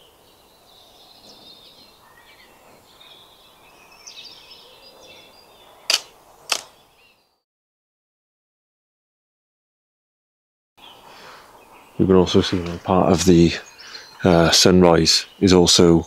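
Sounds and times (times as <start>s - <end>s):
small birds chirping: 0.0s - 7.4s, 10.8s - 16.0s
sharp clicks: 5.9s - 6.7s.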